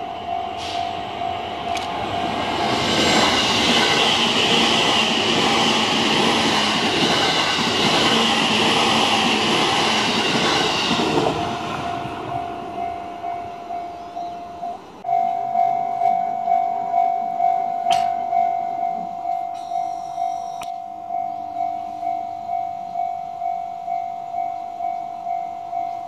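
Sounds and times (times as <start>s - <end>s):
level crossing warning bell: 0.0s - 2.6s, 3.4s - 26.0s
train wheels rushing past: 0.0s - 13.8s.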